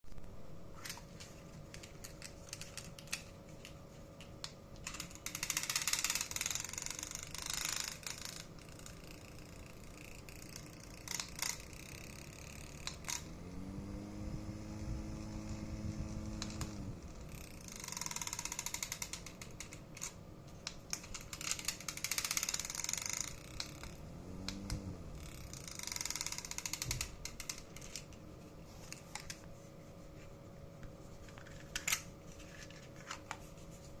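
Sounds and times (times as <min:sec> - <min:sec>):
fan motor whining: 0:04.8 - 0:33.1
rapid rattling clicks: 0:20.9 - 0:28.2.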